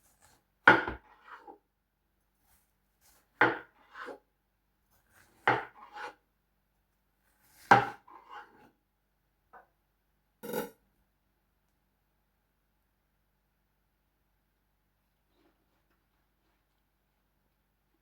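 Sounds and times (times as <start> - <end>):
knife chopping watermelon: 0.0 - 1.5, 2.5 - 4.2, 5.0 - 6.2, 7.4 - 8.6.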